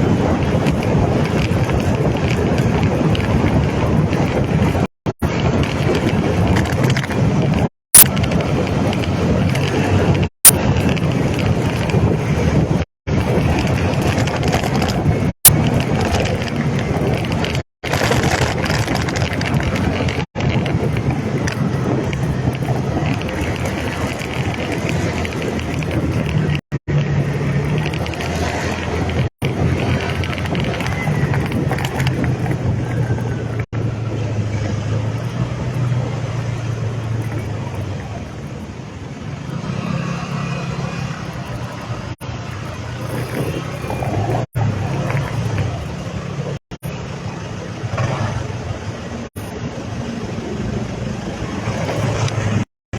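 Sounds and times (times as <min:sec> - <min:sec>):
motorcycle engine running: 0:00.0 - 0:38.4
wind noise on microphone: 0:00.0 - 0:52.7.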